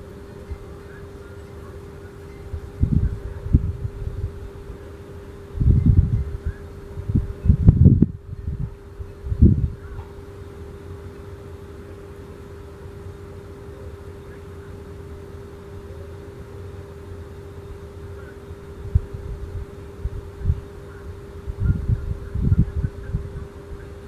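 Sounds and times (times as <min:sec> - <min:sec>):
vehicle engine rumbling: 0:00.0 - 0:24.0
dull low thumps: 0:02.6 - 0:04.7, 0:05.5 - 0:10.2, 0:18.8 - 0:20.7.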